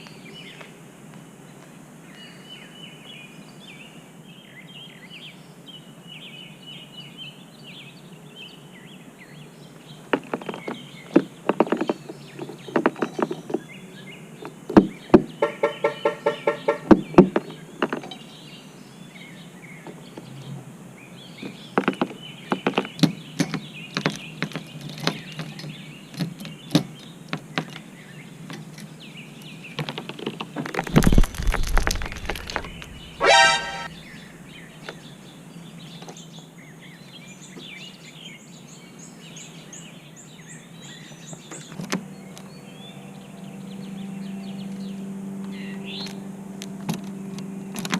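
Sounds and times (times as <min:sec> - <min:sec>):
bird tapping on car: 0:14.7 - 0:18.1
car alarm electronic chirp: 0:15.4 - 0:16.9, 0:33.2 - 0:33.9
faint bird chirps: 0:30.9 - 0:35.2.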